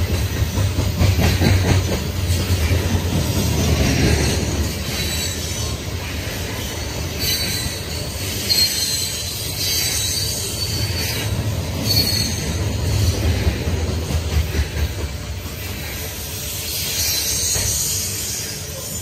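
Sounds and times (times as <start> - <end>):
steel wheels rumbling on rail: 0.0 - 19.0
high wheel squeals: 4.2 - 13.1, 16.6 - 19.0.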